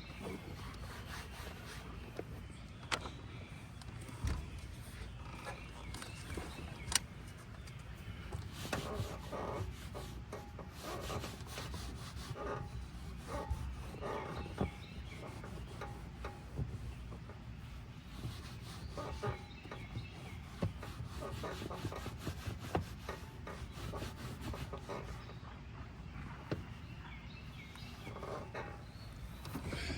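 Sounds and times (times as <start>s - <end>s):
scrubbing car interior: 0.1s - 2.3s, 8.4s - 25.3s.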